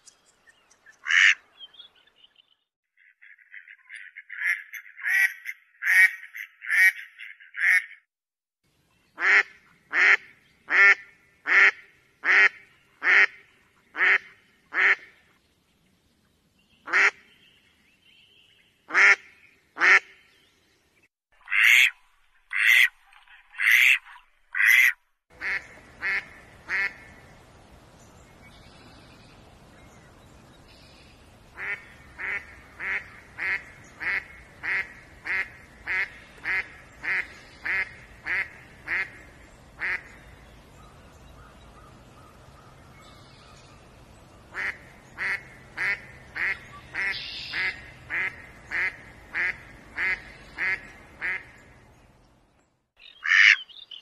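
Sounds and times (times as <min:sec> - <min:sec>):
duck quacking: 0:03.0 - 0:08.0, 0:09.2 - 0:13.4, 0:14.0 - 0:15.1, 0:24.6 - 0:27.1, 0:31.6 - 0:39.2, 0:39.8 - 0:40.1, 0:44.6 - 0:51.5, 0:53.2 - 0:53.7
background hiss: 0:25.4 - 0:52.3.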